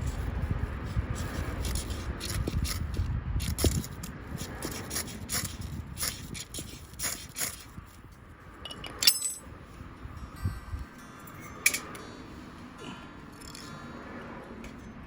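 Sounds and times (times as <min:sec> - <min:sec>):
metal stove clinking: 0:08.7 - 0:09.5, 0:11.3 - 0:12.0.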